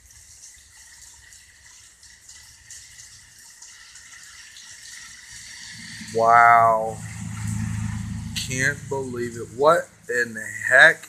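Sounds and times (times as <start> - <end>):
heavy rain pouring: 4.9 - 10.6.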